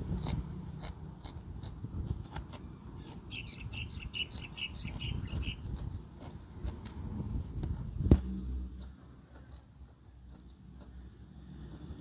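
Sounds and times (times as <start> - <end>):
man chewing with wet mouth clicks: 0.0 - 8.1, 8.7 - 11.2
bird chirping: 3.0 - 5.7.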